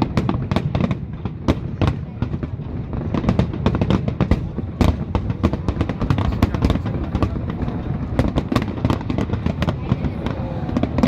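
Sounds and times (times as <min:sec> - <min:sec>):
fireworks cracking and banging: 0:00.0 - 0:11.0.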